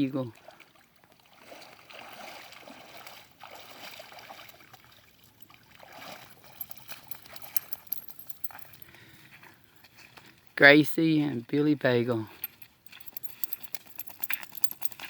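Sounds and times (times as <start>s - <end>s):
paddle swishing through water: 0.7s - 6.4s.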